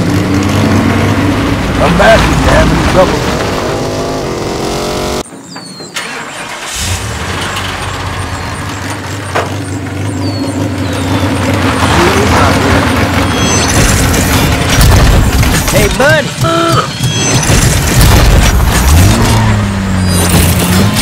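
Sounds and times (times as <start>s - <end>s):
car engine revving: 0.0s - 5.2s, 6.3s - 15.9s, 17.5s - 21.0s
car engine starting and idling: 6.0s - 16.1s.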